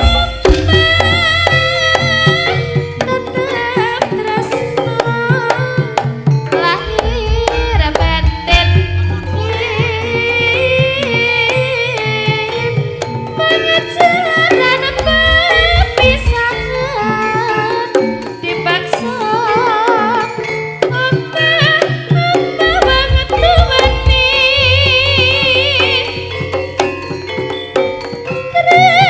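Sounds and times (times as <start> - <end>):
hand drums: 0.0 - 29.0
metal percussion: 0.0 - 29.0
ornamented high melody: 6.2 - 29.0.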